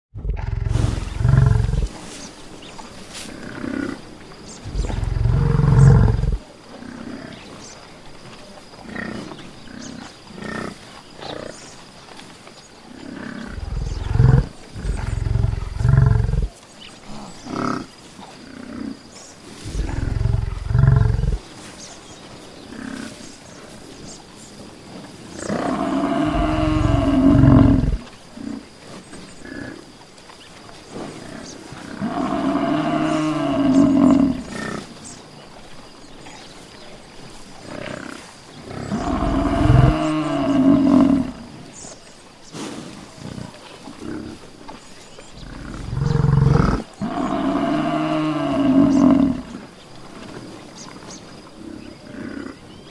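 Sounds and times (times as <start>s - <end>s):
buffalo bellowing: 4.6s - 6.4s, 13.4s - 16.5s, 25.4s - 28.1s, 31.4s - 34.8s, 38.7s - 41.5s, 45.4s - 49.6s.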